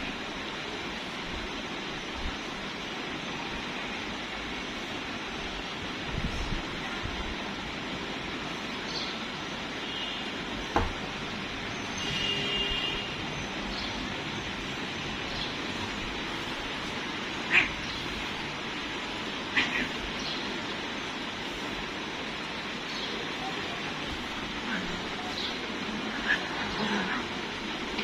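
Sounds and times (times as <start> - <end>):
steady background hiss: 0.0 - 28.0
kitten mewing: 17.4 - 17.8, 19.4 - 20.0.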